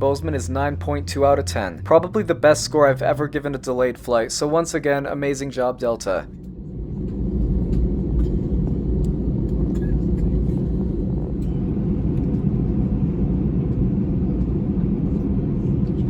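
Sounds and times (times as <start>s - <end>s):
low rumble of jet engines: 0.0s - 16.0s.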